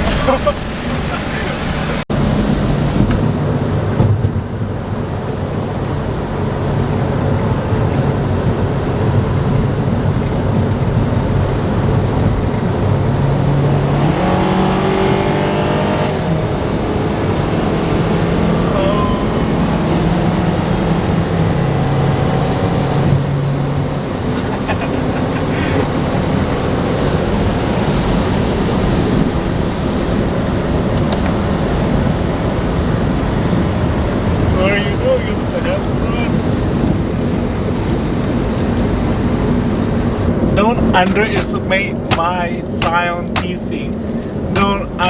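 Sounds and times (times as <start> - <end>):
car engine running: 0.0 - 3.6, 35.2 - 45.0
road noise: 0.0 - 45.0.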